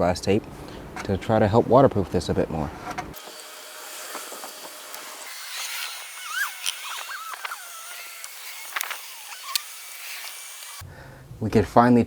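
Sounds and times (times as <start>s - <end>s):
high wavering animal calls: 5.1s - 10.8s.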